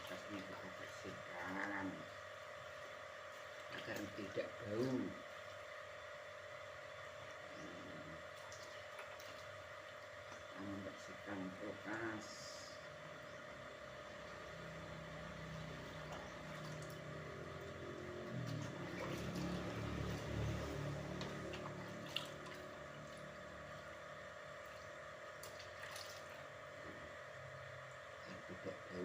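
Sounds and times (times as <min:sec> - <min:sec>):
water splashing and trickling: 0:08.3 - 0:10.6, 0:15.8 - 0:26.7.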